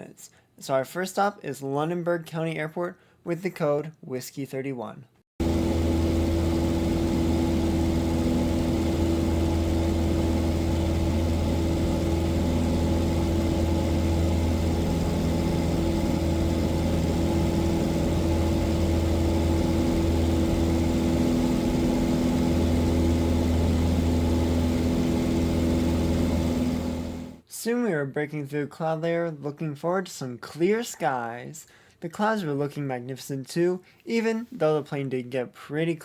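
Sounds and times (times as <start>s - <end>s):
propeller plane engine droning: 5.4s - 27.4s.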